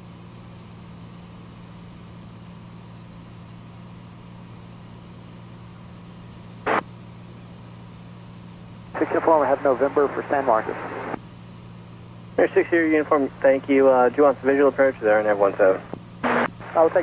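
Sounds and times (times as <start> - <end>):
light aircraft engine drone: 0.0 - 17.0
radio crackle: 9.0 - 11.2, 15.7 - 17.0.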